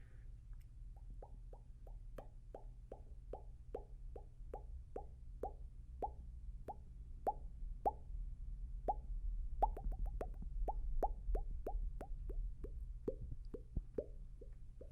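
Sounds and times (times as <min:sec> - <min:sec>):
wet mouth pops: 0:09.6 - 0:12.4.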